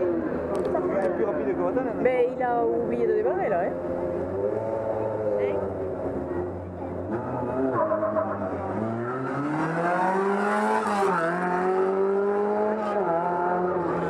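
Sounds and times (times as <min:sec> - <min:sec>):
sports car accelerating hard: 0:04.0 - 0:14.0.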